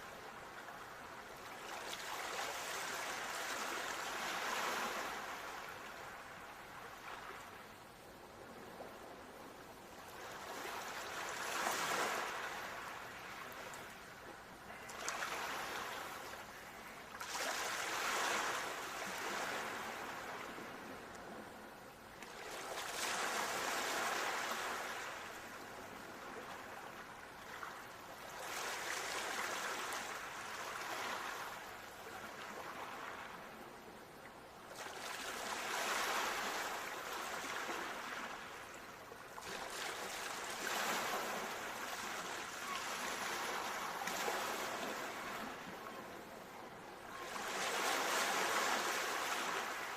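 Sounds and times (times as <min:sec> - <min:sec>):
ocean waves washing onto shore: 0:00.0 - 0:33.6, 0:34.7 - 0:49.9.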